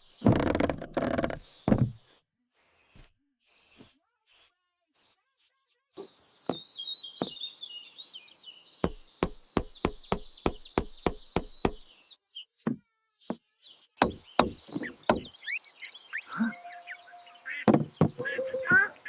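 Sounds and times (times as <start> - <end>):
faint high chirps: 3.5 - 19.0
sharp knocks: 8.8 - 11.9, 14.0 - 15.3, 17.7 - 18.9.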